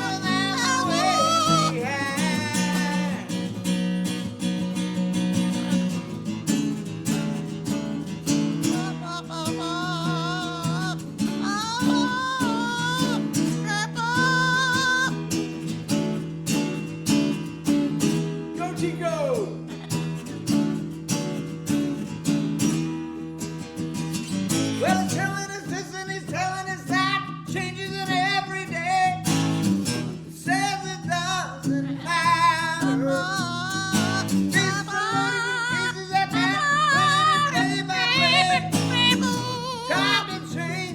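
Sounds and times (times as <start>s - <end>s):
high wavering singing voice: 0.0s - 3.5s, 34.8s - 40.6s
acoustic guitar strumming: 0.0s - 40.9s.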